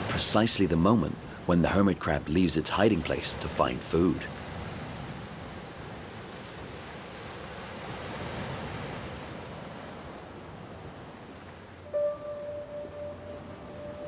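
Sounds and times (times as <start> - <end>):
surf washing onto beach: 0.0 - 12.1
sustained musical tone: 11.8 - 14.0.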